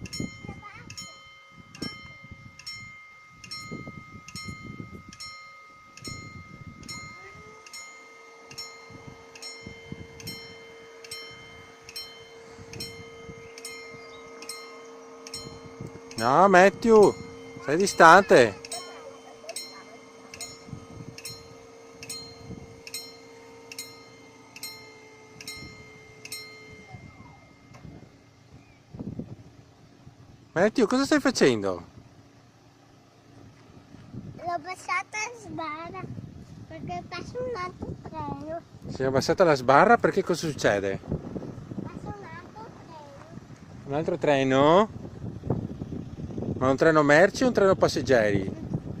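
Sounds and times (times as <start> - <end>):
wind rumble on microphone: 0.0 - 7.6, 26.6 - 30.5, 33.4 - 34.6, 35.4 - 49.0
level crossing bell ringing: 0.0 - 28.5
steady hum: 0.0 - 49.0.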